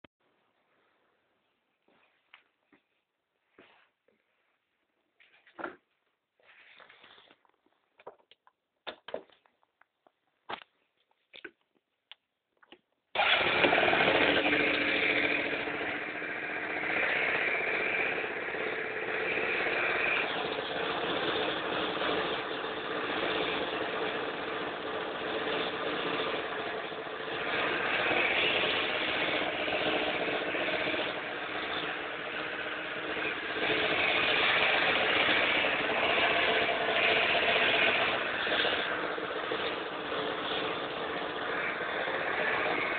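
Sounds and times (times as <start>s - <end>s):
scooter engine revving: 13.2s - 42.9s.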